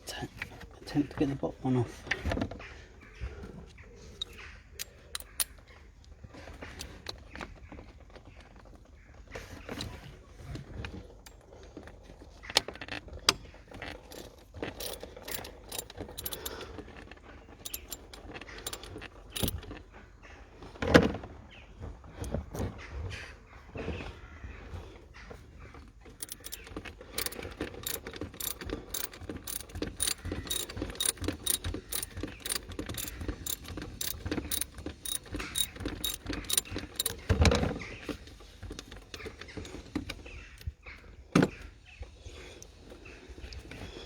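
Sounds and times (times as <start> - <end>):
metal tools clicking on metal: 4.2 - 5.6, 14.2 - 16.7, 17.6 - 19.7, 26.2 - 37.3.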